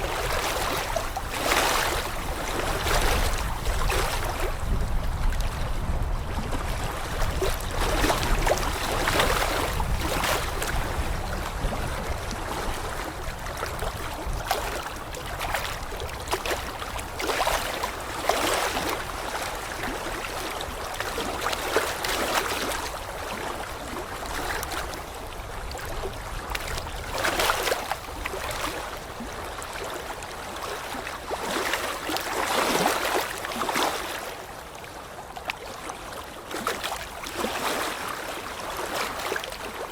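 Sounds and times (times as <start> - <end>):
water washing and lapping: 0.0 - 39.9.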